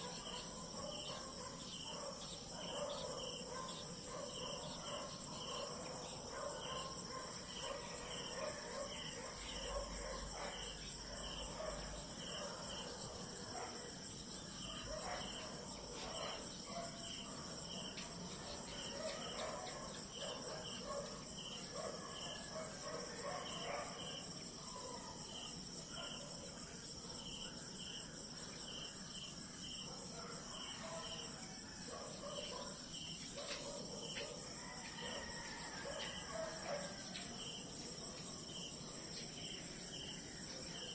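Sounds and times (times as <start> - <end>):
crickets chirping: 0.0 - 40.9
insects trilling: 0.0 - 40.9
low insect calls: 0.0 - 40.9.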